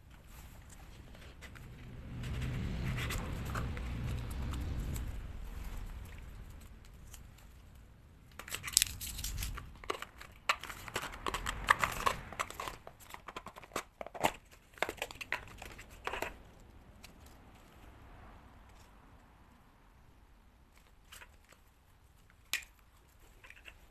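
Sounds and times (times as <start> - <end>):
packaging crinkling and rustling: 8.3 - 16.4.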